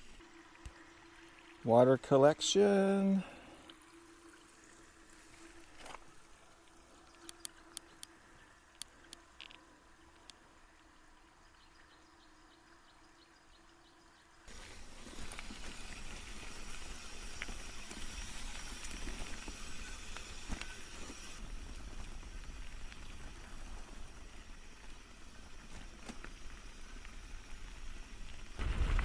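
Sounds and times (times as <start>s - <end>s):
faint bike wheel ticking: 14.5s - 28.6s.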